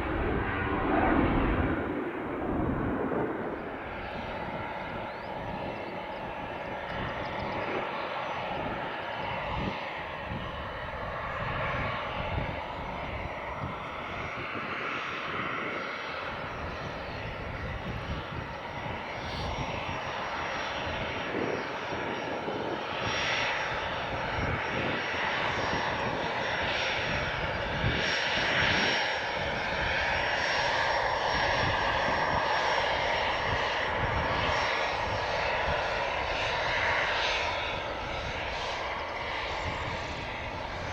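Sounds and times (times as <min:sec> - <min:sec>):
airliner engines whining: 0:00.0 - 0:40.9.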